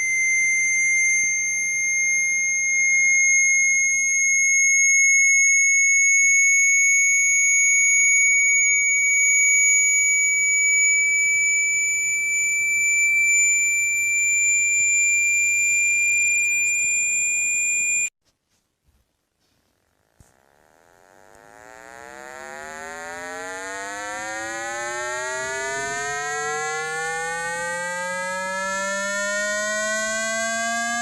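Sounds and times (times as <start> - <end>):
high synthesized tone gliding upward: 20.6 - 31.0.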